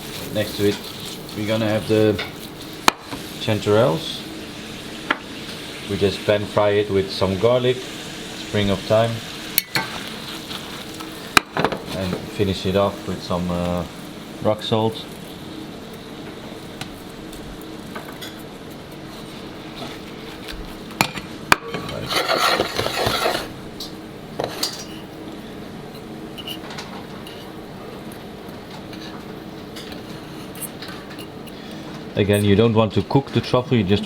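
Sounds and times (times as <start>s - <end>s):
steady background hum: 0.0s - 34.0s
pans and metal utensils clinking: 0.1s - 3.7s, 9.6s - 12.4s, 21.0s - 25.1s.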